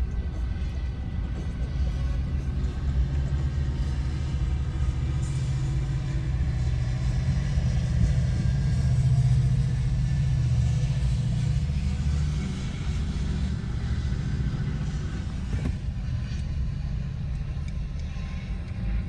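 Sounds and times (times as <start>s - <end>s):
diesel train passing: 0.0s - 19.0s.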